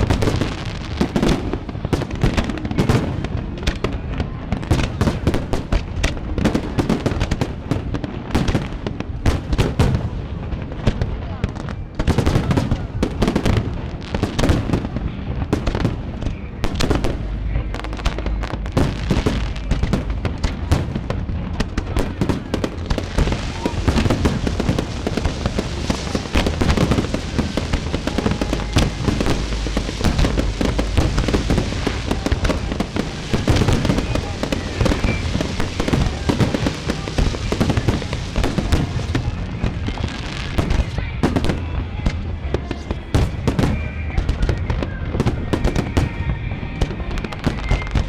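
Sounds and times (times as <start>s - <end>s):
fireworks bangs and booms: 0.0s - 48.0s
fireworks crackling: 0.0s - 48.0s.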